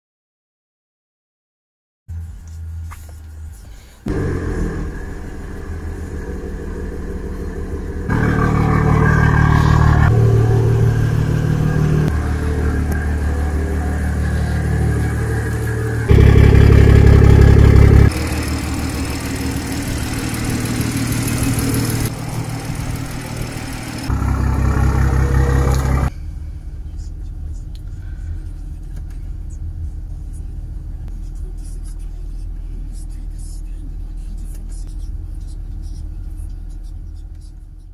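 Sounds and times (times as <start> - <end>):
car engine starting: 4.0 - 33.0
car engine revving: 4.1 - 26.1.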